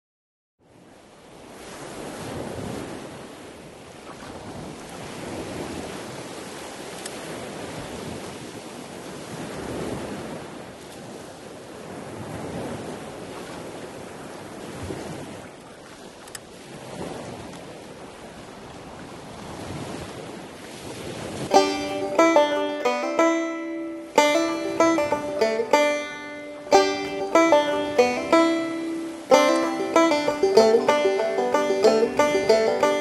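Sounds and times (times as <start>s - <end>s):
sea waves washing: 1.3s - 33.0s
wind buffeting microphone: 24.1s - 33.0s.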